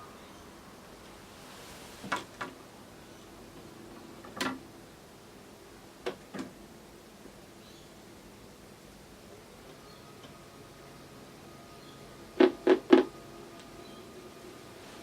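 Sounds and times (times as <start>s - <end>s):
faint hiss: 0.0s - 3.8s.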